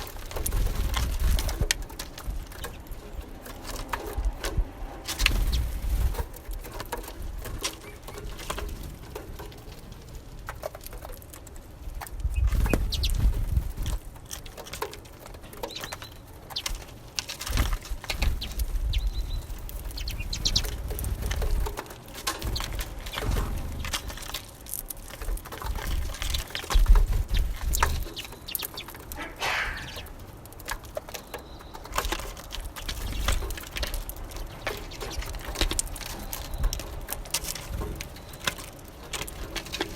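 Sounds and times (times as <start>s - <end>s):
birds pecking taps: 0.0s - 39.9s
wings fluttering: 0.0s - 39.9s
short high bird calls: 29.2s - 30.1s.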